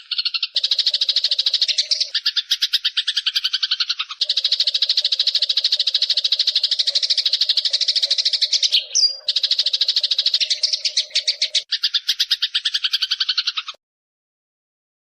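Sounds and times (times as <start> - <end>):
rapid bird chirping trill: 0.0 - 13.8.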